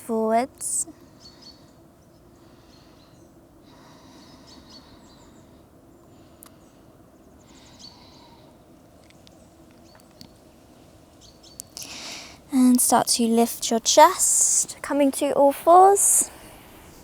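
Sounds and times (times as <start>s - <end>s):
faint bird chirps: 0.8s - 10.4s.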